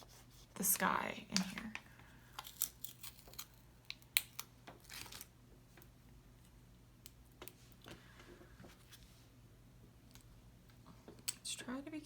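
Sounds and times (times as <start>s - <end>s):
plastic wrap crinkling: 4.8s - 5.3s.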